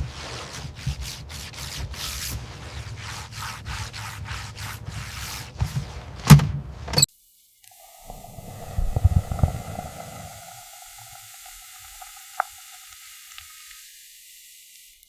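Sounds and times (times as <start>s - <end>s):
scraping strokes on hard surface: 0.0s - 6.0s.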